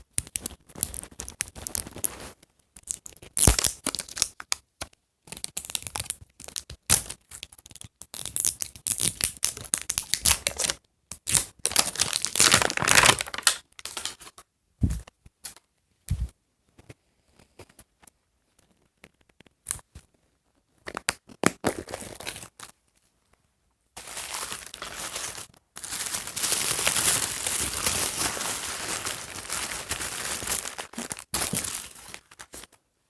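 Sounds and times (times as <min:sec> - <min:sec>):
packaging crinkling and tearing: 0:00.2 - 0:04.6, 0:05.3 - 0:14.4, 0:20.9 - 0:22.8, 0:24.0 - 0:32.8.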